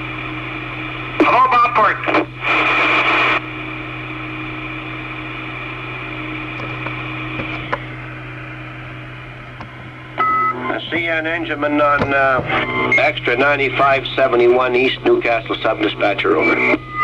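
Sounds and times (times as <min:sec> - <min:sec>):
low radio hiss and hum: 0:00.0 - 0:17.0
radio static burst: 0:01.2 - 0:03.4, 0:10.5 - 0:16.9.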